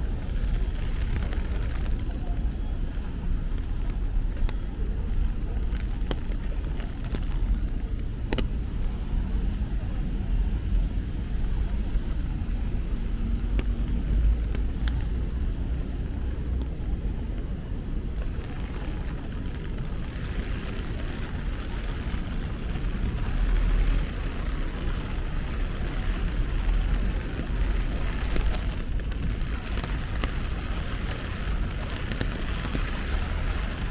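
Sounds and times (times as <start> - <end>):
rain hissing on street: 0.0 - 33.9
traffic rumble: 0.0 - 33.9.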